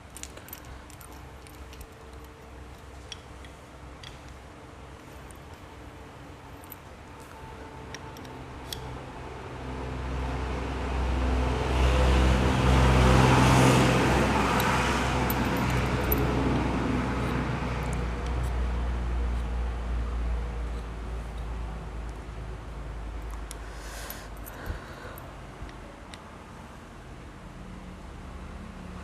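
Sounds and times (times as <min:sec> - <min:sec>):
motor vehicle passing: 0:10.4 - 0:19.5.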